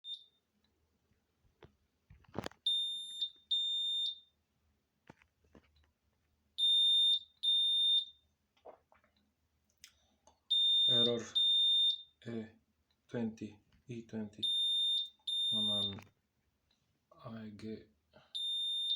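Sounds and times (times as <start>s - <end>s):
washing machine alarm beeps: 0.0s - 0.5s, 2.6s - 4.4s, 6.6s - 8.3s, 10.5s - 12.2s, 14.4s - 16.0s, 18.4s - 18.9s.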